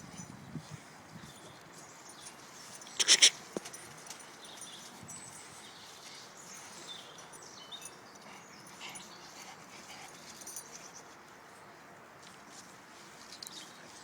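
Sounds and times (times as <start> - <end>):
puppy making small sounds: 3.0 - 3.4.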